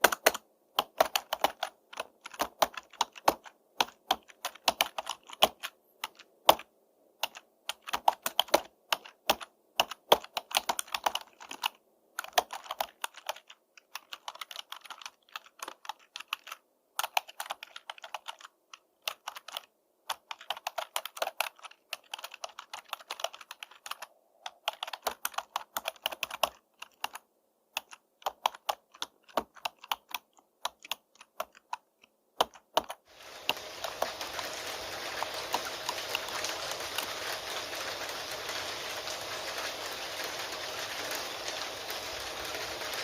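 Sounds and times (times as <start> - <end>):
keyboard key clicks: 0.0 - 27.2
steady rain: 33.1 - 43.0.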